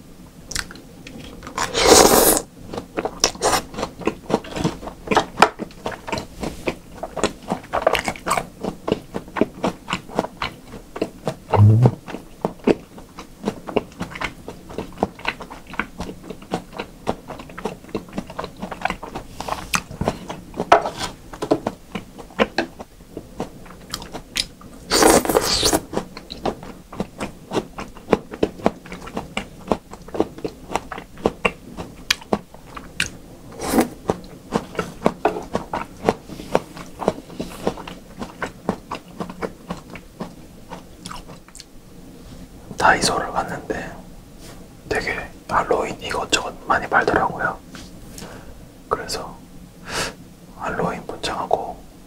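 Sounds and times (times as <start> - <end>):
wet mouth clicks and smacks: 0.5 - 0.8
soft low thump: 11.6 - 12.0.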